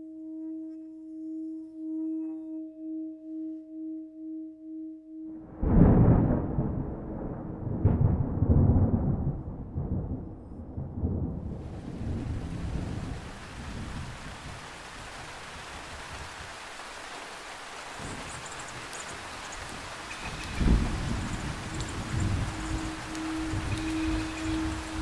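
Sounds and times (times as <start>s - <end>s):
thunder rumbling: 5.4s - 16.5s, 18.0s - 25.0s
heavy rain hiss: 11.6s - 25.0s.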